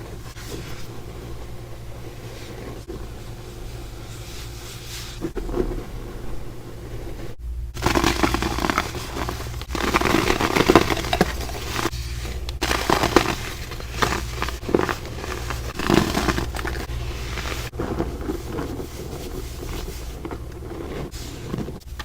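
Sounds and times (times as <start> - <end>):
crumble being crushed: 7.7 - 22.0.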